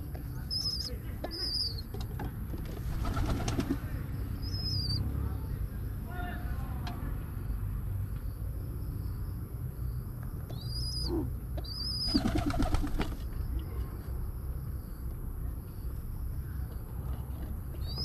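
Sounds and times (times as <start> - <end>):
bird chirps: 0.2 - 1.9, 4.2 - 5.1, 10.5 - 13.0, 17.8 - 18.0
wings fluttering: 2.7 - 4.0, 11.8 - 13.3.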